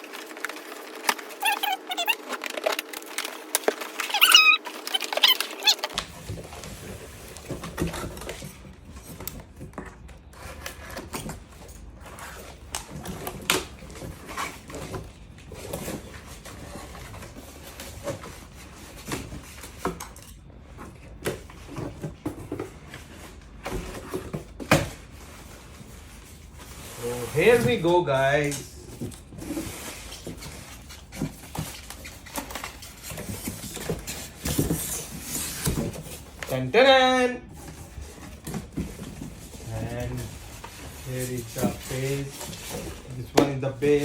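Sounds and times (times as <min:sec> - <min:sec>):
packaging rustling: 0:00.0 - 0:19.7.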